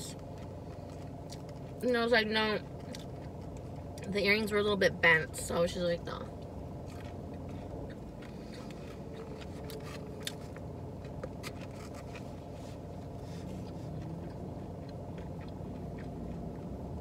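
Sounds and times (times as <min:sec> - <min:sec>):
chewing food: 0:00.0 - 0:04.5, 0:06.2 - 0:17.0
car interior rumble: 0:00.0 - 0:17.0.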